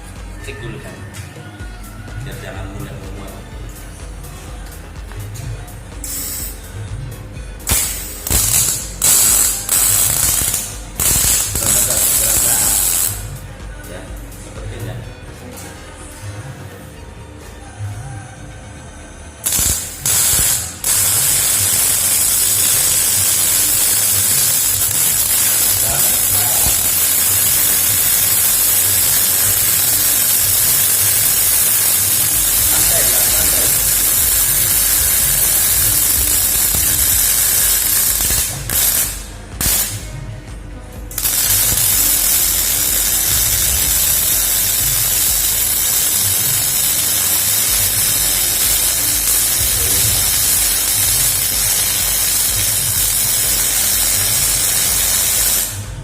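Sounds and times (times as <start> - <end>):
welder arc hissing: 3.7 - 6.9, 7.5 - 13.5, 19.4 - 40.2, 41.0 - 56.0.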